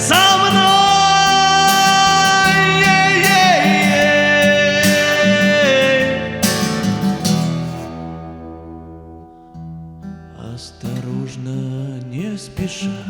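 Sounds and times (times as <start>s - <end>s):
person singing a long note: 0.0s - 6.8s
acoustic guitar strummed: 0.0s - 13.0s.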